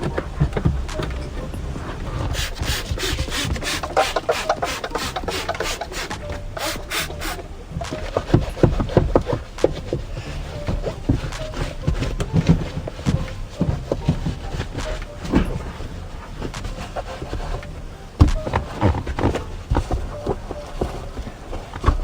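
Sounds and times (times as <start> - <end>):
clicks and knocks: 0.0 - 22.0
scrubbing a surface: 0.0 - 22.0.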